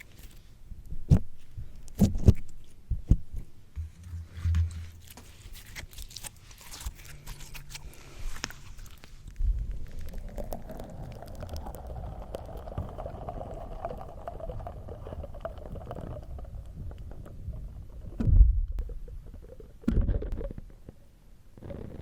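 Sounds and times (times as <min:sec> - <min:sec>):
slime squelching on microphone: 0:03.9 - 0:20.8
sticky pops and crackles: 0:05.6 - 0:17.4.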